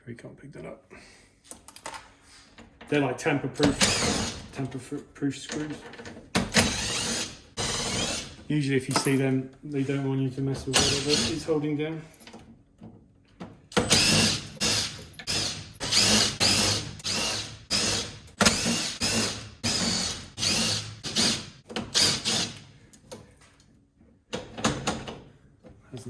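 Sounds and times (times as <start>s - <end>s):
power drill whining in bursts: 6.5s - 8.4s, 10.8s - 11.5s, 13.8s - 22.6s.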